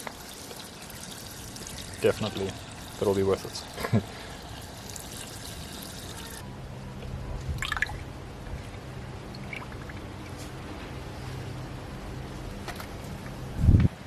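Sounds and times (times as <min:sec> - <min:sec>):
liquid pouring and trickling: 0:00.0 - 0:06.4, 0:07.6 - 0:08.0, 0:09.3 - 0:10.3
steady low hum: 0:00.2 - 0:14.0.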